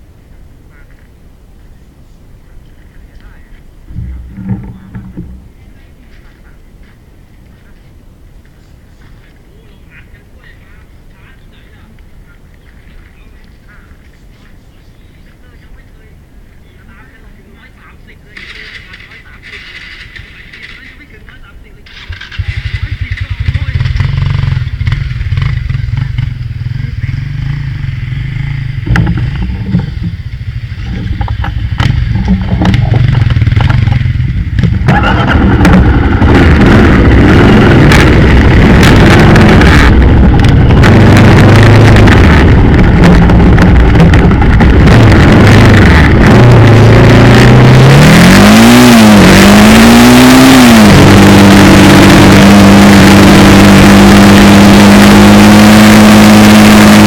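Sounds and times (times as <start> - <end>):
motorcycle engine revving: 3.9 - 5.6, 18.4 - 20.8, 21.8 - 57.0.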